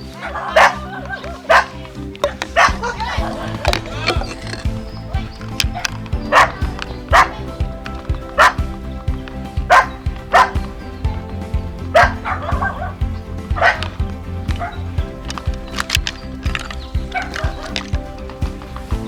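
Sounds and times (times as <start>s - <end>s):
background music with beat: 0.0s - 19.0s
dog barking: 0.1s - 8.9s, 9.6s - 10.9s, 11.9s - 13.9s.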